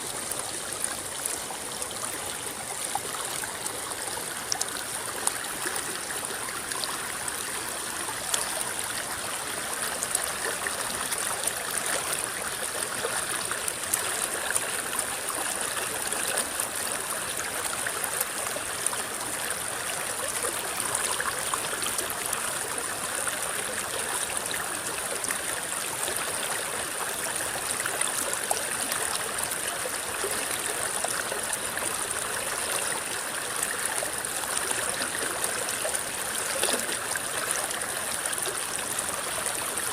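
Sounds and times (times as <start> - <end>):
river rippling and gurgling: 0.0 - 39.9
small water splashes: 33.0 - 39.9.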